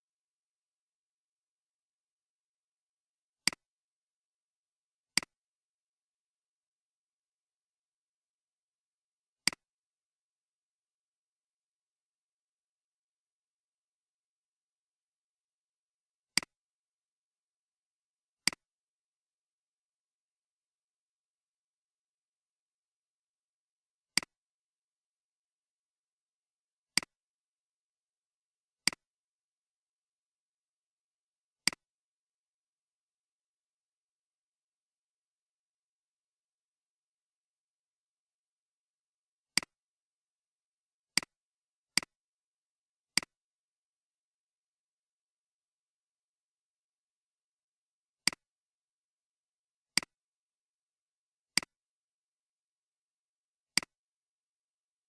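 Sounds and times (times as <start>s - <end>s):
computer mouse button clicks: 31.6s - 31.9s.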